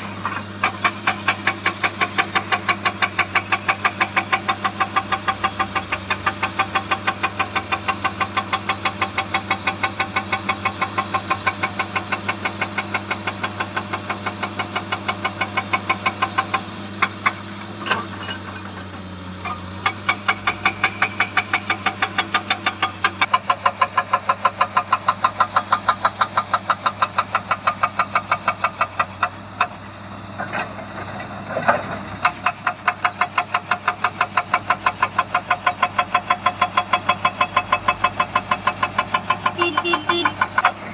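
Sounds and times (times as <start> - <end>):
hydraulic rock breaker hammering: 0.0 - 29.8
excavator engine hum: 0.0 - 40.9.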